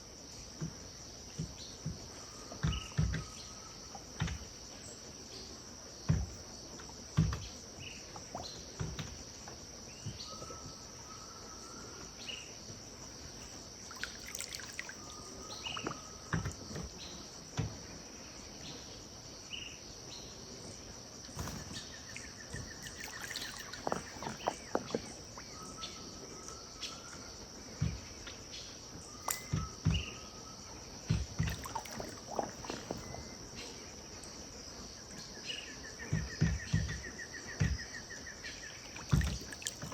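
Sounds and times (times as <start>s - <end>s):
high insect chorus: 0.0s - 39.9s
bird trill: 21.4s - 27.2s.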